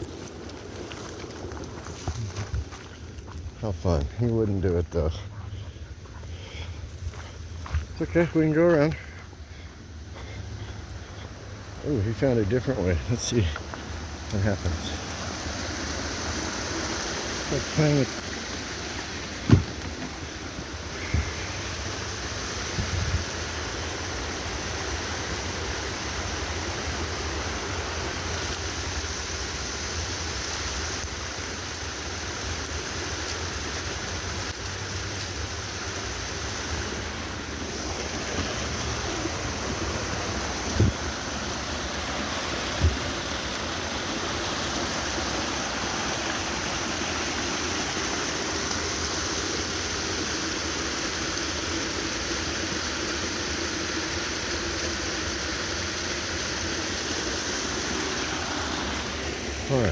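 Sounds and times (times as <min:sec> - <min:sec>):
small waterfall rushing: 0:11.9 - 0:59.9.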